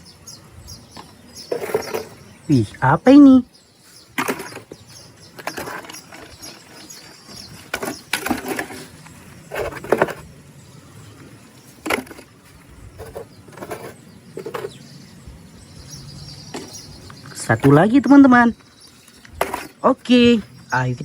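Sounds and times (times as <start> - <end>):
plastic toys clicking and knocking: 4.2 - 6.8, 7.6 - 8.8, 9.5 - 10.2, 19.2 - 19.8.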